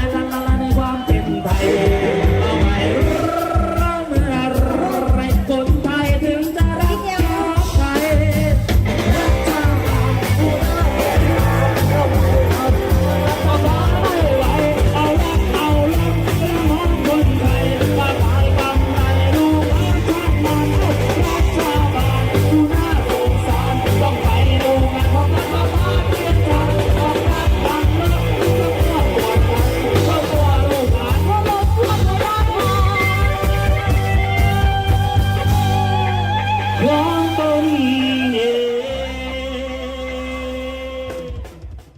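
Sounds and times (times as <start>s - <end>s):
driving drum beat: 0.0s - 41.9s
heavy bass: 0.0s - 41.9s
person singing: 0.0s - 41.9s.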